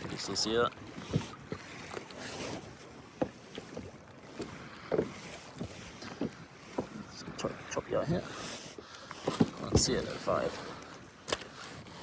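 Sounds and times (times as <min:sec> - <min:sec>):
water slapping against kayak hull: 0:00.0 - 0:12.0.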